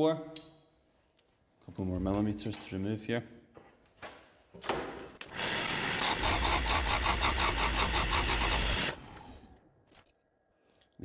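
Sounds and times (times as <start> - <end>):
chisel cutting wood on a lathe: 5.4 - 9.0
lathe motor humming: 5.4 - 9.1.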